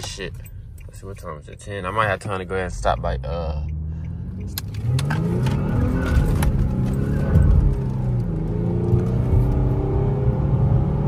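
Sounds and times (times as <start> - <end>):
car engine accelerating hard: 3.0 - 11.0.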